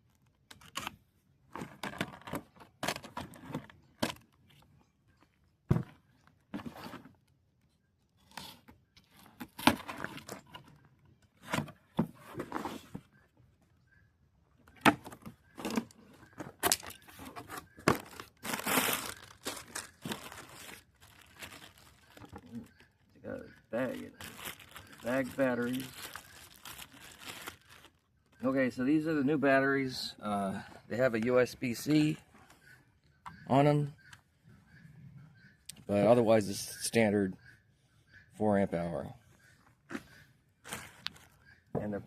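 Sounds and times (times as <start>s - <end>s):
cardboard and plastic tearing: 16.6s - 22.5s, 24.2s - 28.0s.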